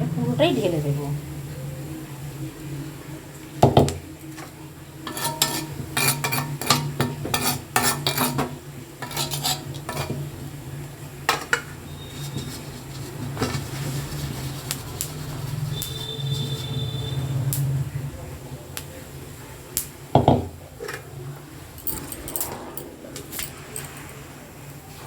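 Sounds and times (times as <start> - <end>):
metal spatula scraping a pan: 5.0 - 10.5.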